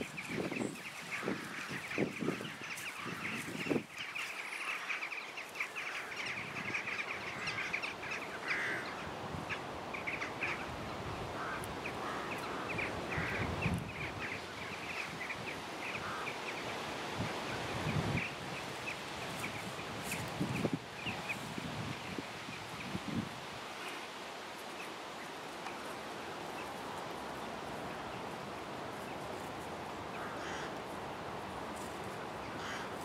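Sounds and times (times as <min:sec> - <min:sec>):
small birds chirping: 0:00.0 - 0:23.2.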